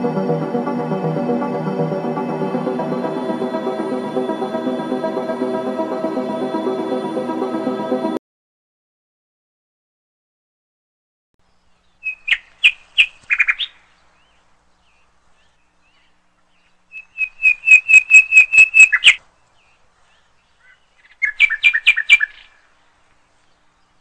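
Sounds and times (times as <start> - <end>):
bird chirping: 11.4 - 24.0.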